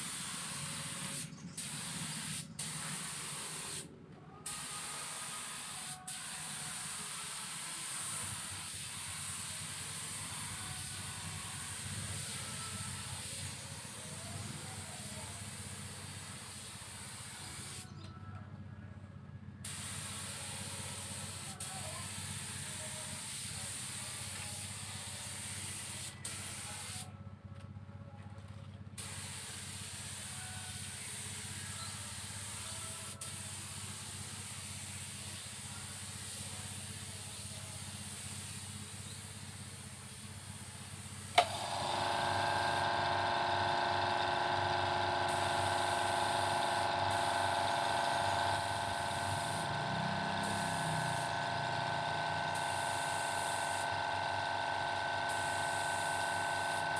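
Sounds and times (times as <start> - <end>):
paint spray gun hissing: 0.0 - 18.0, 19.6 - 27.1, 29.0 - 56.9
motor humming: 41.4 - 56.9.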